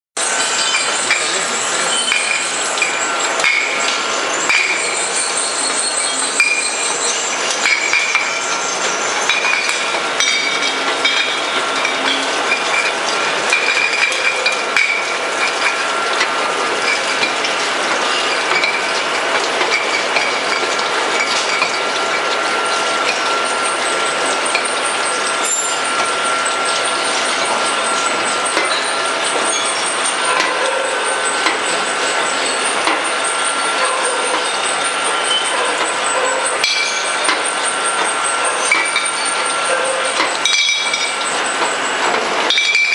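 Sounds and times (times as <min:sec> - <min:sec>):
bottle washing machine clattering: 0:00.2 - 0:42.9
faint machine whine: 0:00.2 - 0:42.9.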